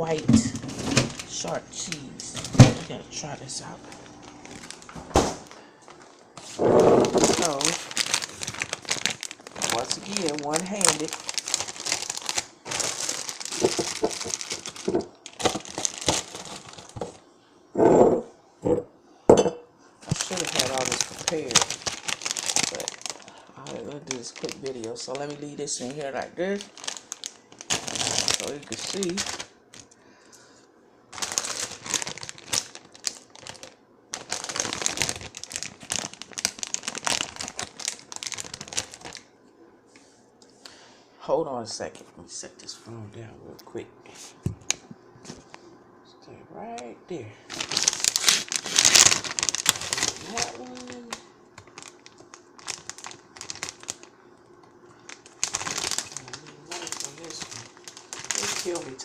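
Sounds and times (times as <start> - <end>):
plastic packaging crinkling: 0.0 - 17.2, 20.0 - 30.0, 31.1 - 39.3, 47.5 - 59.0.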